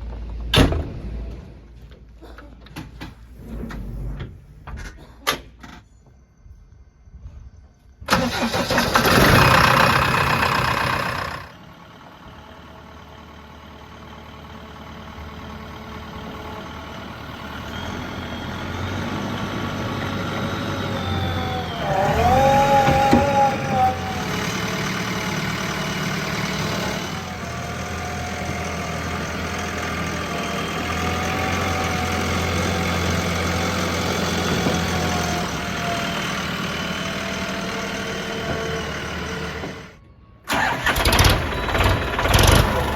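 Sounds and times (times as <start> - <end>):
heavy diesel engines running: 8.1 - 42.9.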